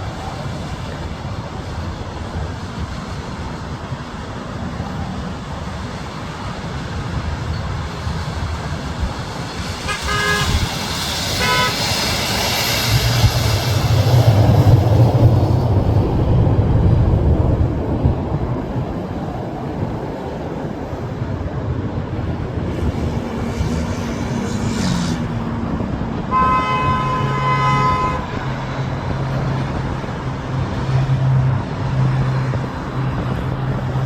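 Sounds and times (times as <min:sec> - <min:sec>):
aircraft engine passing: 0:00.0 - 0:34.0
wind buffeting microphone: 0:00.0 - 0:34.0
short horn toots: 0:09.9 - 0:10.7, 0:11.4 - 0:11.9, 0:26.3 - 0:28.2.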